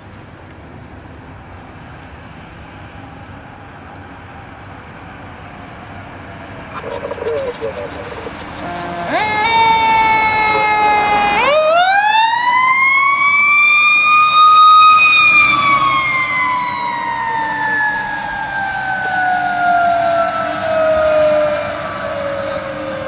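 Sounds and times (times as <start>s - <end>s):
mechanical siren wailing: 6.7s - 23.0s.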